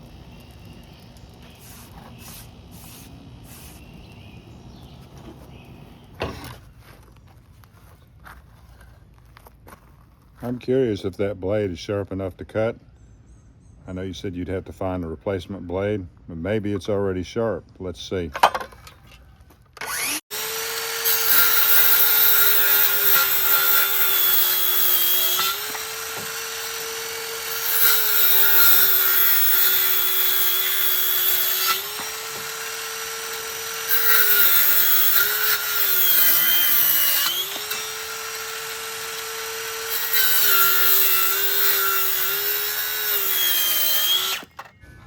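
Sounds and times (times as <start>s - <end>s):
electric power saw cutting: 19.8s - 44.7s.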